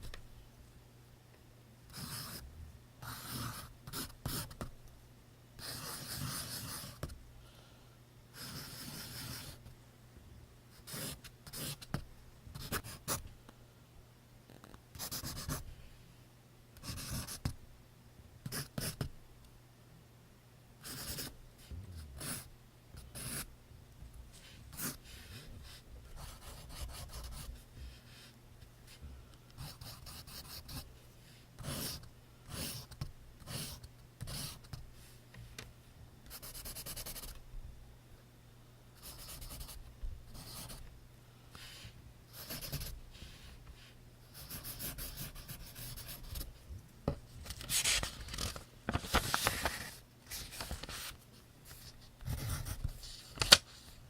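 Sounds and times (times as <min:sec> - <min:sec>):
pencil writing on paper: 0:01.9 - 0:02.4, 0:03.0 - 0:04.7, 0:05.6 - 0:07.1, 0:08.4 - 0:09.6, 0:10.8 - 0:12.0, 0:15.0 - 0:15.6, 0:16.8 - 0:17.5, 0:18.5 - 0:19.1, 0:20.8 - 0:21.3, 0:22.2 - 0:23.5, 0:24.7 - 0:27.6, 0:29.6 - 0:30.8, 0:31.6 - 0:34.8, 0:36.3 - 0:37.3, 0:39.0 - 0:40.8, 0:42.3 - 0:42.9, 0:44.3 - 0:46.5, 0:52.2 - 0:52.9.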